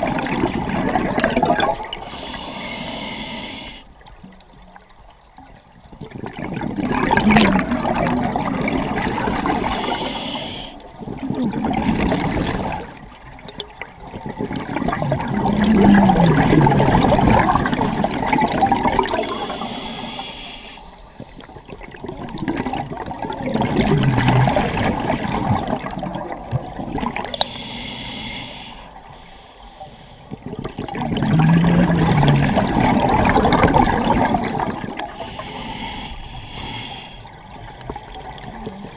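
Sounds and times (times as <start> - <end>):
rush of bubbles: 0.0 - 2.4, 6.0 - 20.2, 21.4 - 27.4, 30.4 - 35.5
hissing regulator inhalations: 1.9 - 4.0, 9.7 - 11.0, 19.2 - 21.8, 24.5 - 25.9, 27.3 - 30.5, 34.1 - 37.6.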